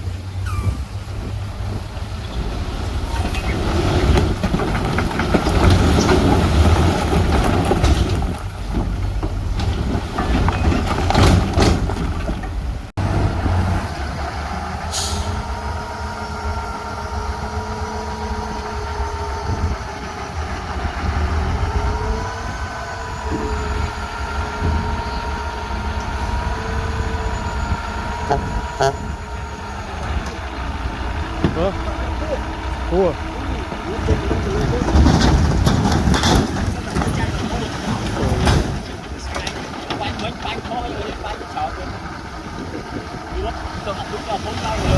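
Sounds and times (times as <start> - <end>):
heavy diesel machinery rumbling: 0.0 - 44.9
air brake hiss: 14.9 - 15.4.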